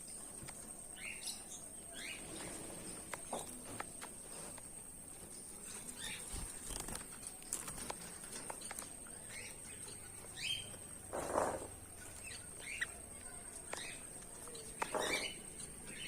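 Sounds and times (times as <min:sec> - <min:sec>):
finches chirping: 0:00.0 - 0:04.1, 0:05.2 - 0:16.0
wings fluttering: 0:05.6 - 0:09.0.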